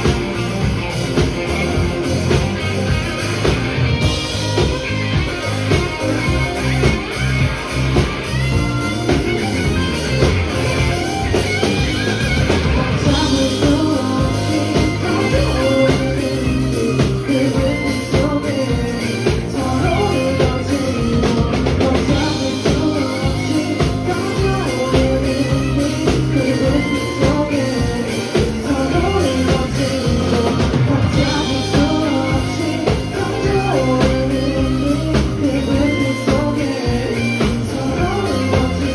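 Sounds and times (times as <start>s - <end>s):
drums: 0.0s - 38.9s
guitar: 0.0s - 38.9s
person singing: 12.6s - 38.9s.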